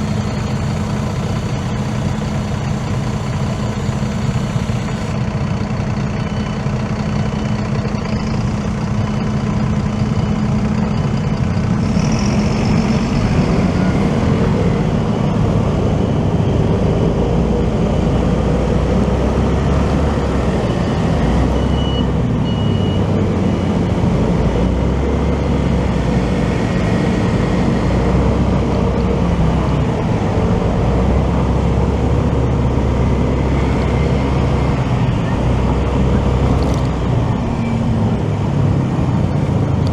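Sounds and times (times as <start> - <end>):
motorcycle engine running: 0.0 - 22.4, 23.0 - 39.9
road noise: 0.0 - 39.9.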